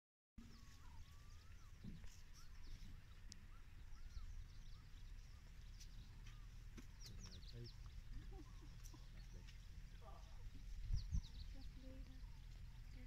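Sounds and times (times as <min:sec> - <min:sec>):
high bird chirps: 0:00.4 - 0:09.7
steady low rumble: 0:02.4 - 0:13.0.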